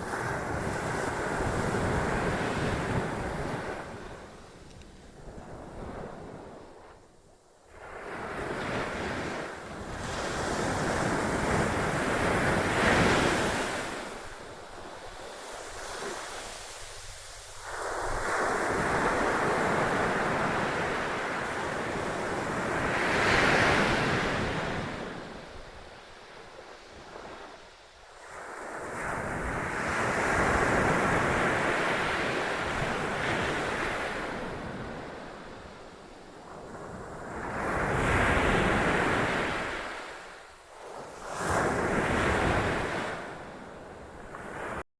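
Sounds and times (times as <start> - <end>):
surf crashing on a beach: 0.0 - 7.0, 7.7 - 44.8
wind buffeting microphone: 0.0 - 27.6.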